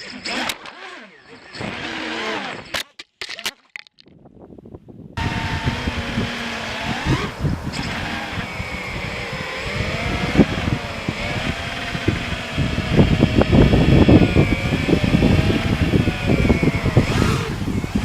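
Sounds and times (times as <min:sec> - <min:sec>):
quadcopter motors whining: 0:00.0 - 0:02.8, 0:05.2 - 0:18.0
wind rumble on microphone: 0:04.1 - 0:18.0.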